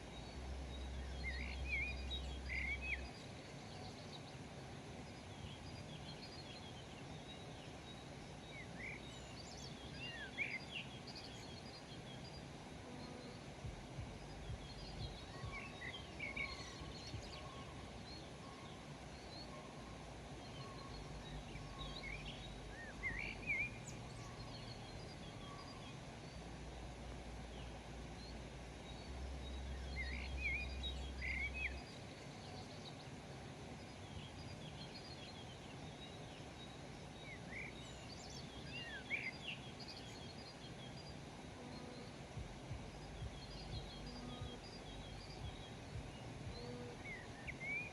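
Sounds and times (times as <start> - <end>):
songbirds chirping: 0.0 - 47.9
steady outdoor hiss: 0.0 - 47.9
low rumble: 13.6 - 15.6, 42.4 - 47.4.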